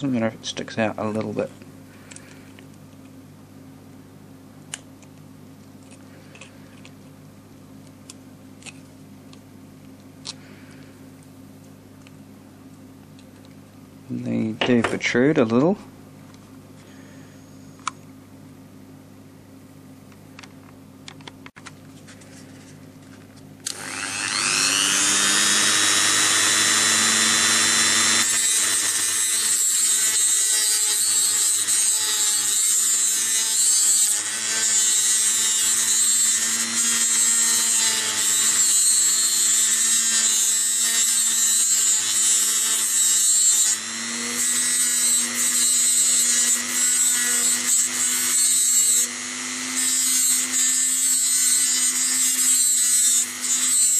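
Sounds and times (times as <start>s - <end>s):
rotary tool trimming plastic: 23.6s - 53.9s.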